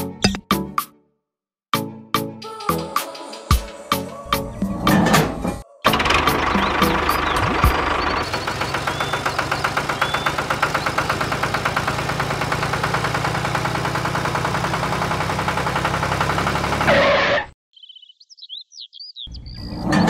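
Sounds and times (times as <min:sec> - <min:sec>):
small engine idling: 0:05.9 - 0:17.0.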